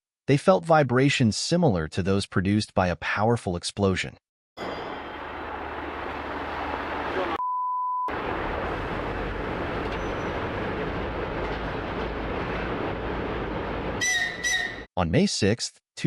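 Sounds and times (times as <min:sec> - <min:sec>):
censor bleep: 0:07.4 - 0:08.1
rushing noise with low rumble: 0:08.1 - 0:14.0.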